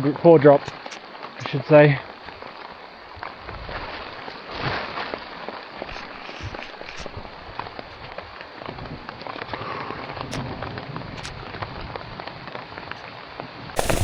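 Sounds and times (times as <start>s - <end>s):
hailstones pattering: 13.8s - 14.0s.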